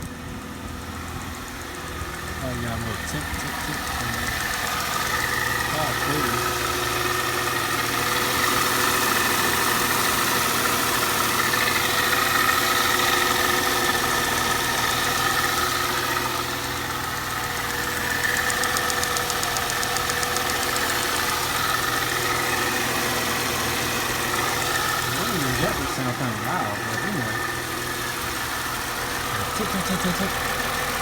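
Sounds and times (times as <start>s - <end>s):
car engine idling: 0.0s - 31.0s
fast engine ticking: 0.0s - 31.0s.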